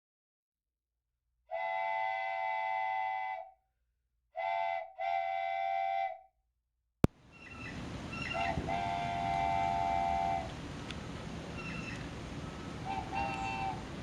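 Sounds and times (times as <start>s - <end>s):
multi-tone train whistle blasts: 1.5s - 3.6s, 4.4s - 6.3s, 8.2s - 10.5s, 12.8s - 13.9s.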